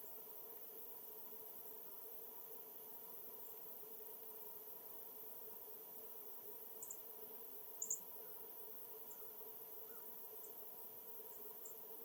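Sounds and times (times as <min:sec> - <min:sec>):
faint background hiss: 0:00.0 - 0:12.0.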